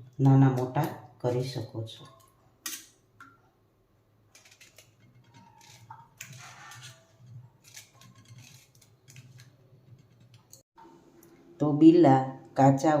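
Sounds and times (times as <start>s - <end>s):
knife cutting fruit: 4.4s - 9.6s.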